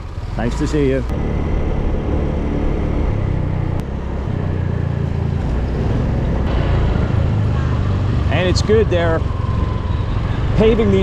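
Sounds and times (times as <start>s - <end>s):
wind rushing: 1.1s - 10.6s.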